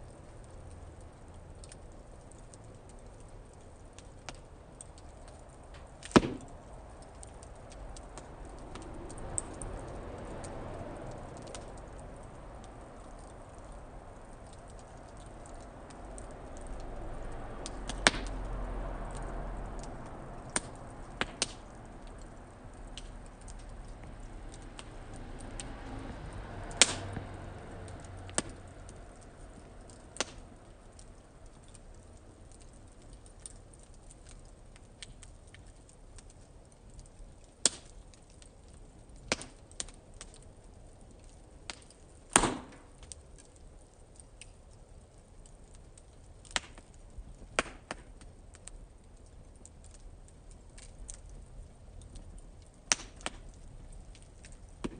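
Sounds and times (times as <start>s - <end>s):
low rush of flame: 0.0s - 54.9s
wood fire crackling and popping: 0.0s - 54.9s.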